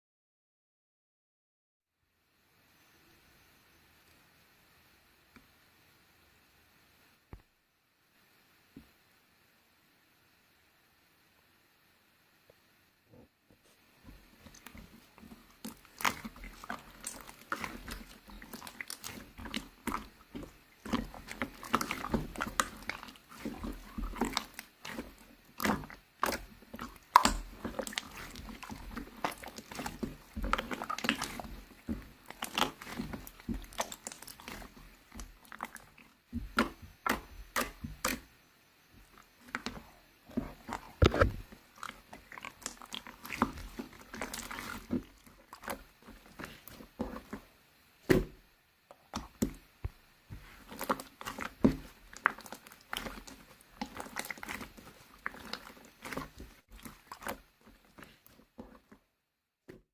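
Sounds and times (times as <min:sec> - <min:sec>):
chewing and crunching: 0:14.5 - 0:38.2, 0:39.0 - 0:47.5, 0:50.4 - 0:59.0.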